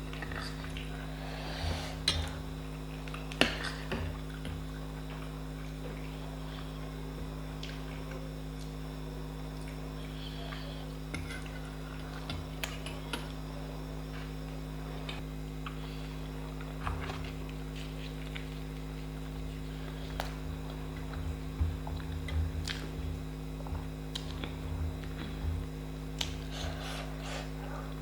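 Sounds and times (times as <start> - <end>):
low electrical hum: 0.0 - 28.0
quiet chewing: 16.5 - 28.0.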